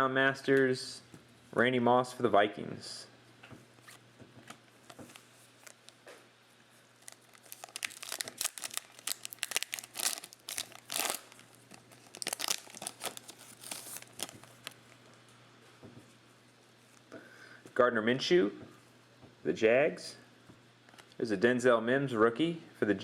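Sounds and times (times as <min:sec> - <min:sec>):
plastic wrapper crinkling and tearing: 0:04.8 - 0:06.0, 0:07.0 - 0:15.0.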